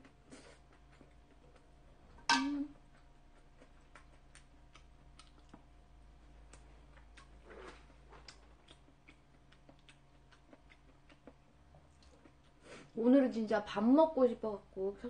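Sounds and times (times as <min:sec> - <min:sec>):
chewing with wet mouth clicks: 0:00.0 - 0:01.7, 0:02.9 - 0:12.6.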